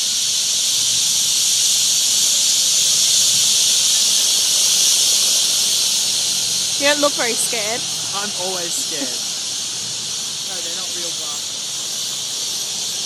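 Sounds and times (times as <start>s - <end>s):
large flock of birds chattering: 3.0s - 13.0s.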